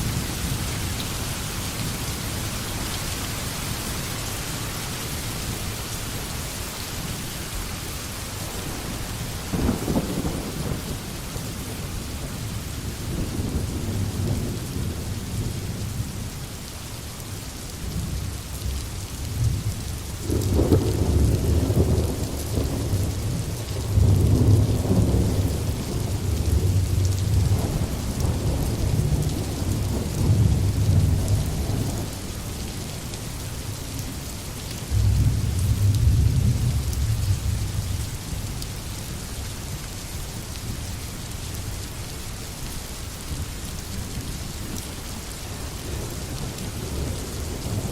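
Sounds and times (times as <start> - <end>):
rain hiss: 0.0 - 47.9
rolling thunder: 8.6 - 11.8, 20.2 - 32.2, 34.9 - 38.0.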